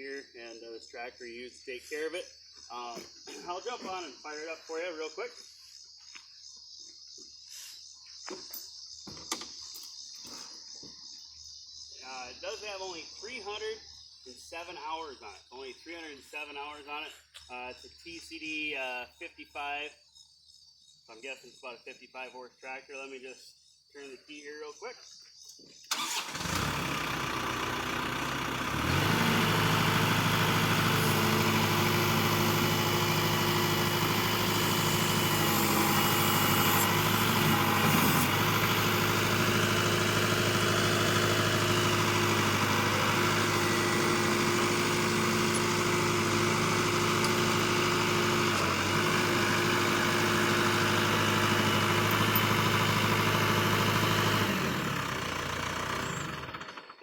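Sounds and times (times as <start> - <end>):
tractor diesel engine running: 25.9 - 57.0.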